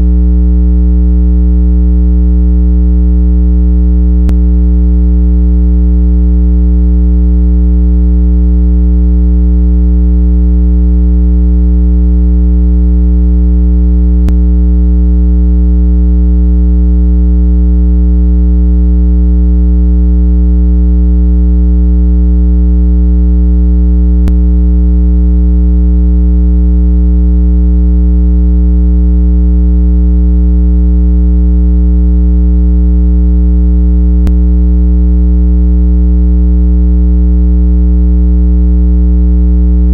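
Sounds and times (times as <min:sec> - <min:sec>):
low-pitched electronic tone: 0:00.0 - 0:19.2, 0:22.6 - 0:26.2, 0:34.1 - 0:34.6.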